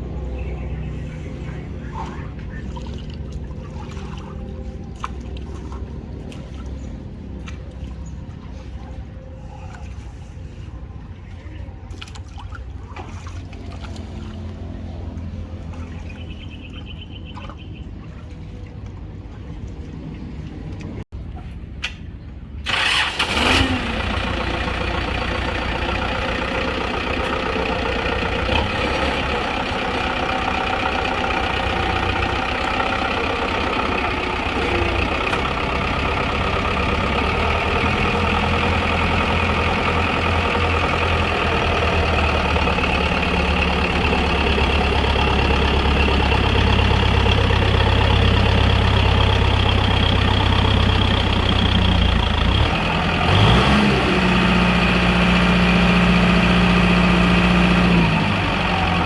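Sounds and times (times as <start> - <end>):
tractor diesel engine revving: 22.6 - 59.0.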